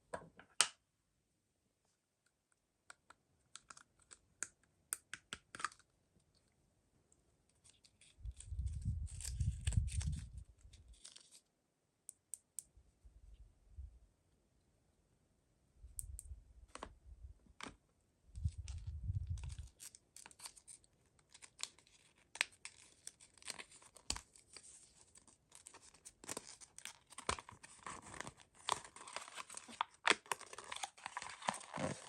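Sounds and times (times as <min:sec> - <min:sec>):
packaging crinkling and rustling: 0:07.6 - 0:11.4, 0:18.5 - 0:32.0.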